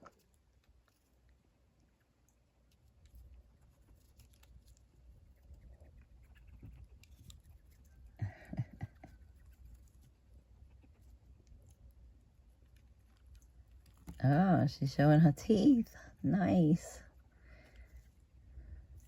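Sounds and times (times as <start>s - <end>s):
small animal clicks and scuffles: 0.0s - 8.1s, 9.1s - 14.3s.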